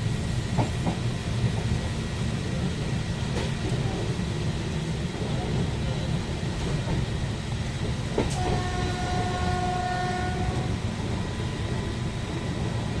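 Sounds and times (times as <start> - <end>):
train rumbling: 0.0 - 13.0
train horn chord: 8.3 - 10.8.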